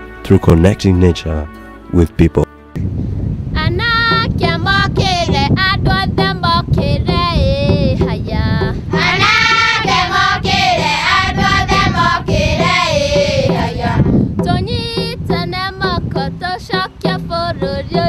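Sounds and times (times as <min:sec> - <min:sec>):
song with high-pitched singing: 0:03.6 - 0:18.0.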